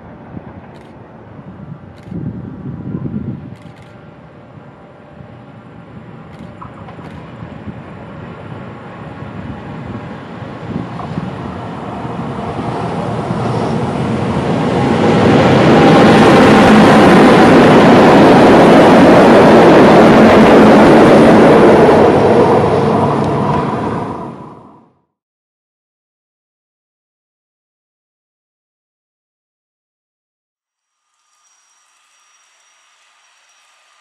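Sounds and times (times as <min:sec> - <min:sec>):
train wheels rumbling on rails: 0:00.0 - 0:24.8
train whine: 0:00.0 - 0:25.1, 0:30.8 - 0:34.0.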